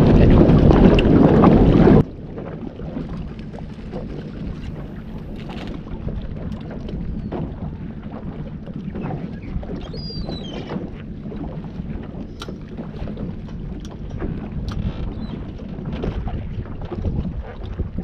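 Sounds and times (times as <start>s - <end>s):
steady low rumble: 0.0s - 18.0s
wind buffeting microphone: 0.0s - 18.0s.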